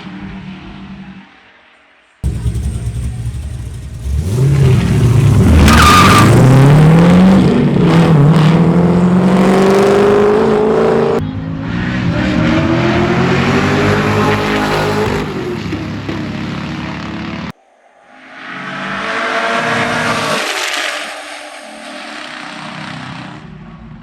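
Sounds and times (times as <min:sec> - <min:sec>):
tire squeal: 0:02.2 - 0:10.4, 0:18.4 - 0:23.5
quieter engine climbing in pitch: 0:02.2 - 0:17.5
race car engines revving: 0:02.2 - 0:17.5.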